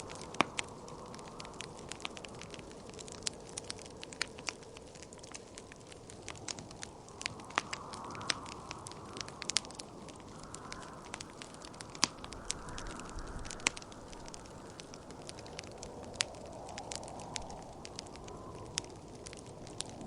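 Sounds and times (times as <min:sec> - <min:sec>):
wood fire crackling: 0:00.0 - 0:20.0
wind whooshing: 0:07.3 - 0:18.6.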